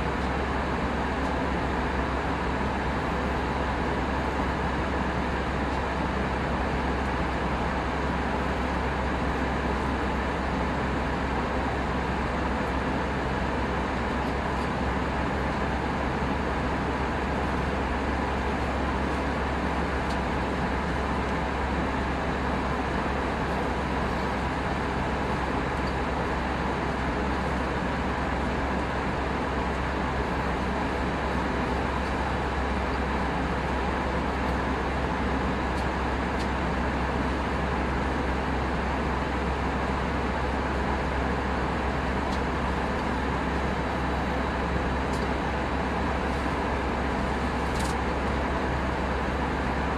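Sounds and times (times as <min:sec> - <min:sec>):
airflow rushing in cabin: 0:00.0 - 0:49.9
deep engine hum: 0:00.0 - 0:49.9.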